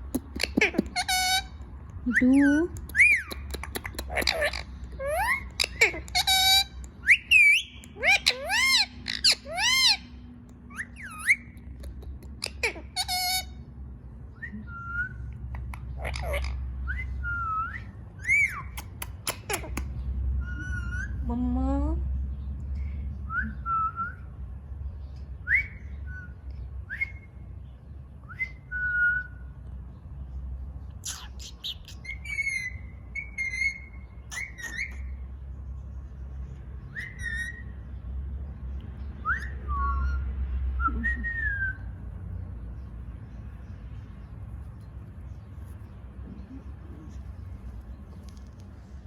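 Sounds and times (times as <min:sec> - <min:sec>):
steady low hum: 0:00.0 - 0:49.0
parakeet whistled calls: 0:04.1 - 0:10.1, 0:10.7 - 0:11.6, 0:14.6 - 0:19.6, 0:31.0 - 0:35.2, 0:36.9 - 0:37.8, 0:39.2 - 0:40.3.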